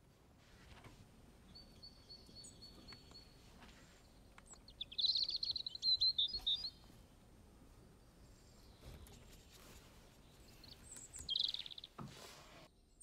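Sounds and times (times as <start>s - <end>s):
bird singing: 1.4s - 7.0s, 10.2s - 12.0s.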